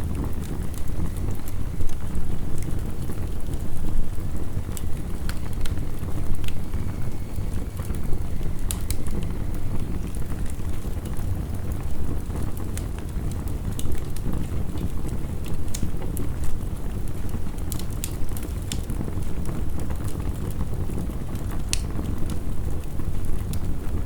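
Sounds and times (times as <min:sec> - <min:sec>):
heavy rain: 0:00.0 - 0:15.1
wood fire crackling: 0:00.0 - 0:24.0.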